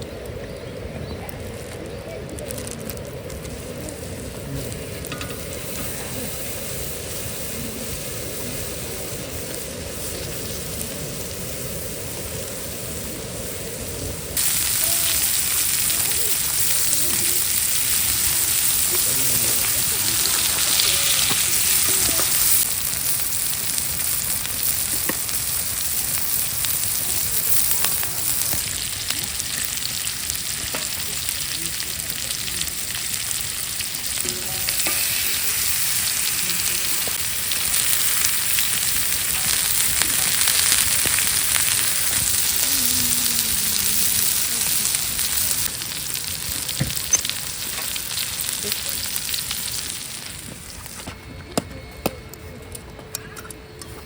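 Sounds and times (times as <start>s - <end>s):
food sizzling in frying pan: 1.5s - 51.1s
small pops of frying food: 4.7s - 6.1s, 14.4s - 52.2s.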